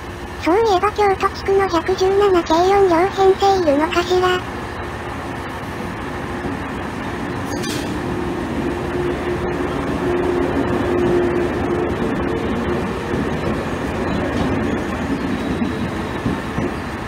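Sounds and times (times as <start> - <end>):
train wheels on rails: 4.4 - 17.0.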